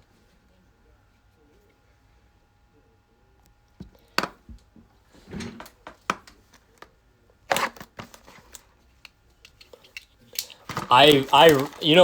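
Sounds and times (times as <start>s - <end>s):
card packaging torn open: 10.4s - 12.0s.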